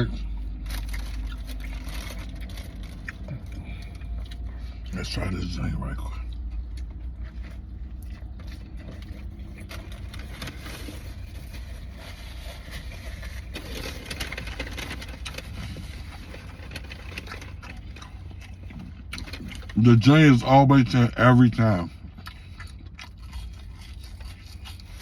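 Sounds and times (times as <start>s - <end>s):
wrapper rustling and clicks: 9.7s - 17.7s.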